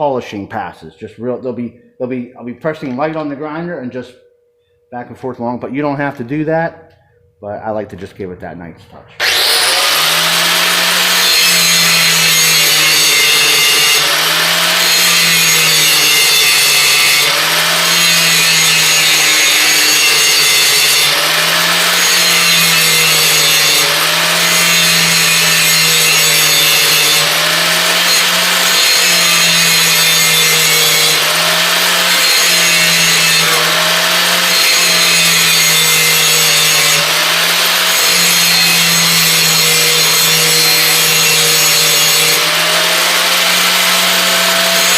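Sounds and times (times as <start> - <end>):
electric grinder running: 9.2 - 44.9.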